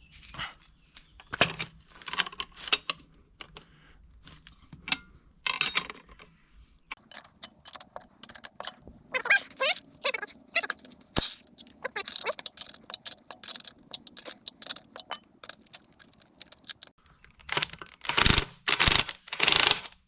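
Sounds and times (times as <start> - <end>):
metal tools clinking and clicking: 7.0 - 16.9.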